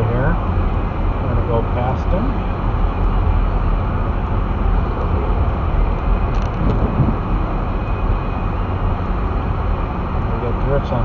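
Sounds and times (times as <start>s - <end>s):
car engine and tyre noise: 0.0s - 11.0s.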